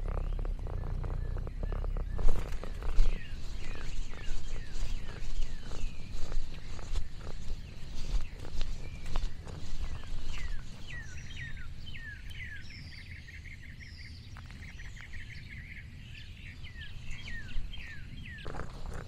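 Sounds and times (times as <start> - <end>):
chattering bird trill: 0.0 - 12.6
steady low rumble: 0.0 - 14.0
thin high bird calls: 0.0 - 19.0.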